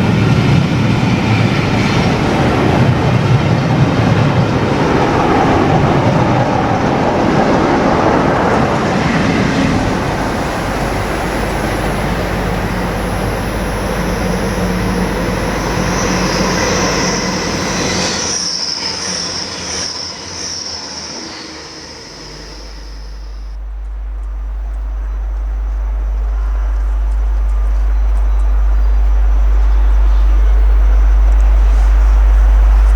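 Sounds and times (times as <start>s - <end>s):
low steady rumble: 0.0s - 18.0s, 22.8s - 32.9s
train running on rails: 0.0s - 32.9s
high wheel squeal: 8.5s - 23.6s.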